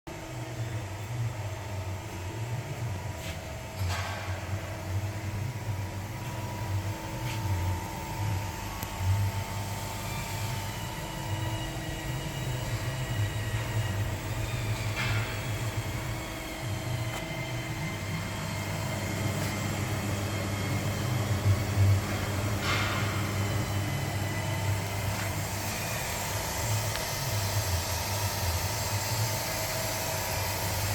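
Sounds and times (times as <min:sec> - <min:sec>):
press brake hum and whine: 0:00.1 - 0:30.9.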